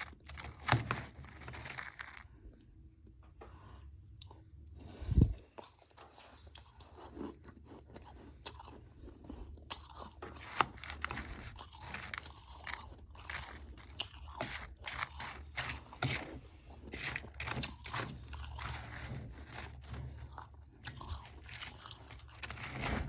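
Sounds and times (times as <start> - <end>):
chewing and crunching ice: 0.0 - 23.0.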